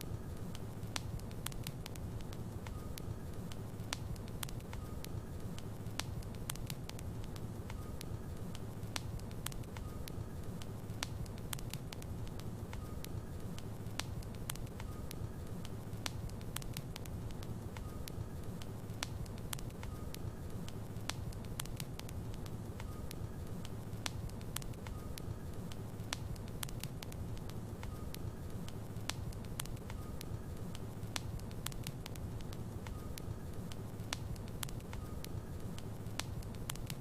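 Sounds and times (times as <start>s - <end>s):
logs crackling and popping: 0.0s - 37.0s
low rumble of flame: 0.0s - 37.0s.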